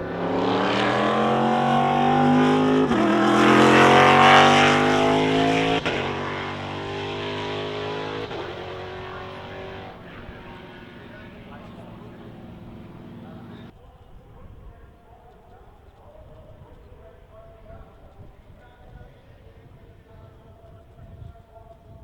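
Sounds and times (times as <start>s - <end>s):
race car accelerating past: 0.0s - 13.7s.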